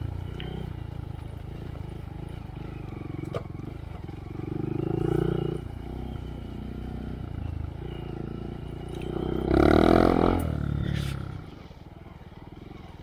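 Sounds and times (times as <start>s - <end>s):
motorcycle engine revving: 0.0s - 11.8s.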